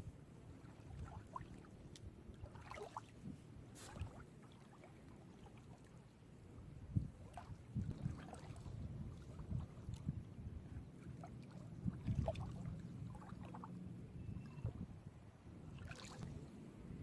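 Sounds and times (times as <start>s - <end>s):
waves lapping on shore: 2.4s - 6.1s, 15.8s - 16.7s.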